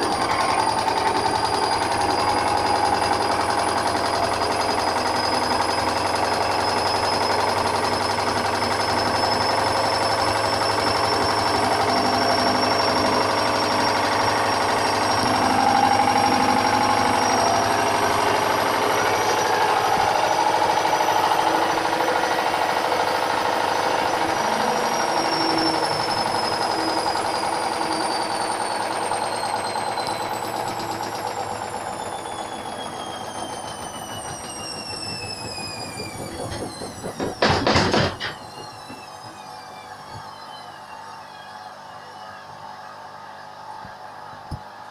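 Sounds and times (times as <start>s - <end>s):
washing machine humming: 0.0s - 44.9s
washing machine motor whine: 0.0s - 44.9s
washing machine banging on spin: 36.2s - 39.1s.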